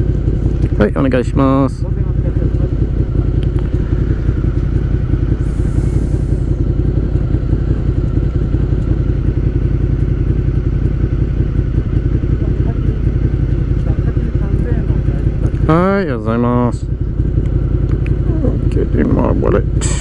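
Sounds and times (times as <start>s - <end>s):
motorcycle engine idling: 0.0s - 20.0s
brief high hiss: 19.8s - 20.0s.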